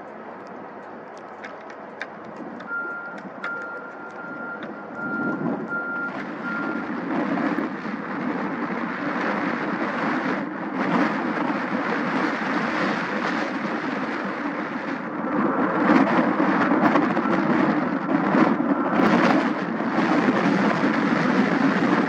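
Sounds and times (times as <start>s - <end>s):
jet engines rushing: 0.0s - 22.0s
reversing alarm beeps: 2.7s - 6.9s.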